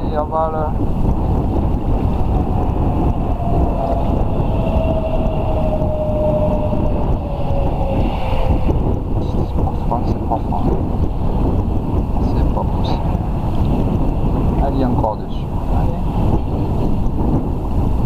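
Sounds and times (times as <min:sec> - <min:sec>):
wind buffeting microphone: 0:00.0 - 0:18.0
faint thin drone: 0:00.7 - 0:10.8.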